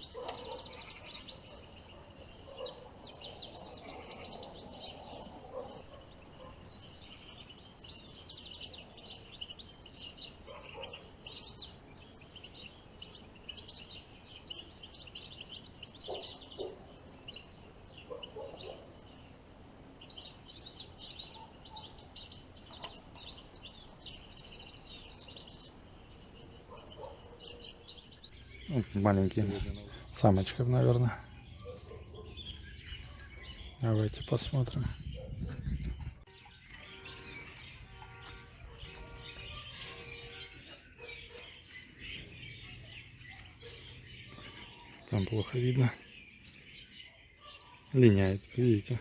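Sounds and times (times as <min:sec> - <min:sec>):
goldfinches twittering: 0:00.0 - 0:49.0.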